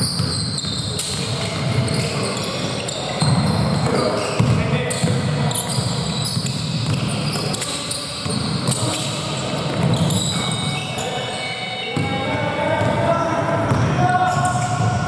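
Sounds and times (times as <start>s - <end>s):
basketball bouncing on floor: 0.0s - 2.0s, 4.4s - 5.2s, 9.7s - 10.4s
shoe squeaks: 0.0s - 14.8s
footsteps and court noise: 0.0s - 15.0s.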